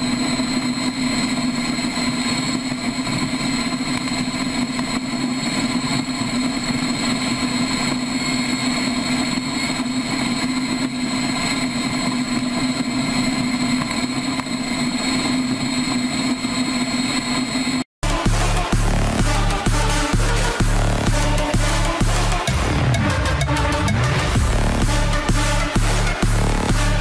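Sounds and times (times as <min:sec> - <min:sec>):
motorcycle engine running: 0:18.0 - 0:27.0.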